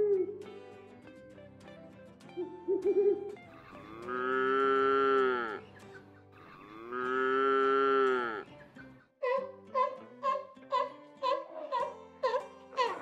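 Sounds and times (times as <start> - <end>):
cow mooing: 3.7 - 5.6, 6.4 - 8.5.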